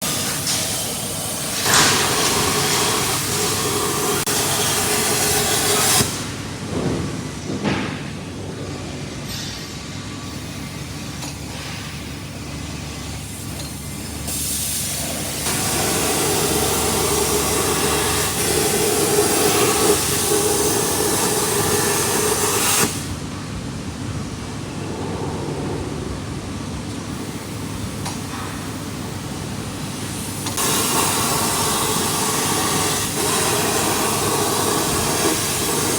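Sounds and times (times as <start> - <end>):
low machine noise: 23.0 - 35.8
cutting machine hiss: 30.0 - 35.9.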